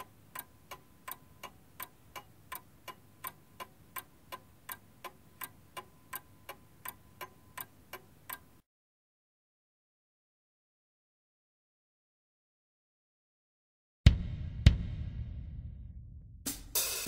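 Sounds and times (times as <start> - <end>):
steady ticking: 0.0 - 8.6.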